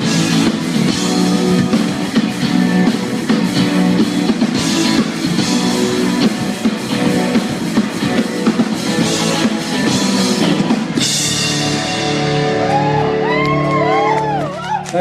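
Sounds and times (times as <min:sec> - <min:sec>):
live rock band playing: 0:00.0 - 0:15.0
crowd whooping: 0:11.7 - 0:15.0.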